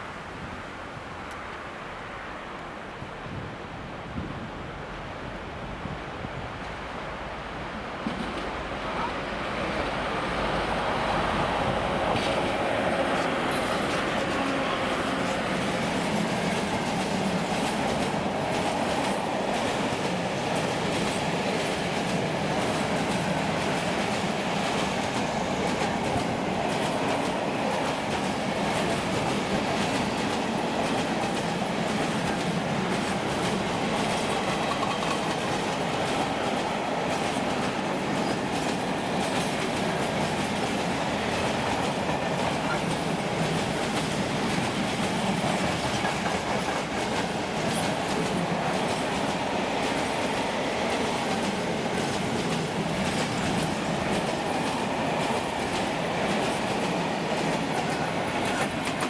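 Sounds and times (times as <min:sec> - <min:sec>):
train rumbling on rails: 0:00.0 - 0:59.0
wheels clicking over rail joints: 0:12.1 - 0:59.0.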